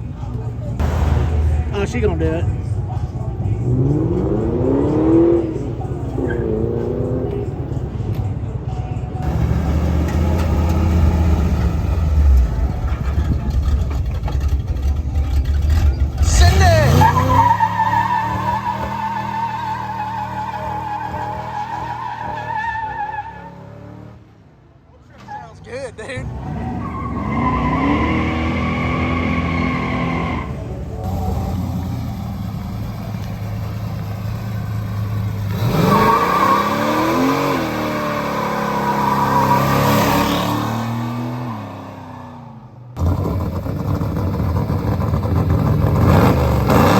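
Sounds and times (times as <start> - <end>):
car engine running and revving: 0.0 - 22.2, 26.2 - 46.9
car engine running deep: 9.2 - 17.4, 30.5 - 38.6, 43.0 - 46.9.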